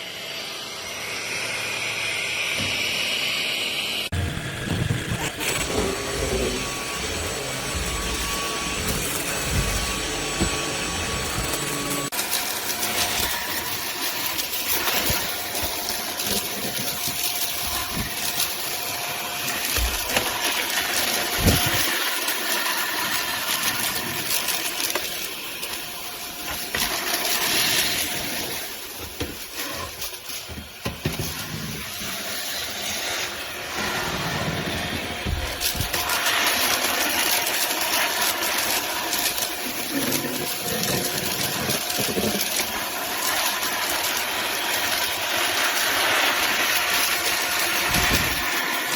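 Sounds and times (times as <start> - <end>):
stick vacuum running: 0.0 - 48.9.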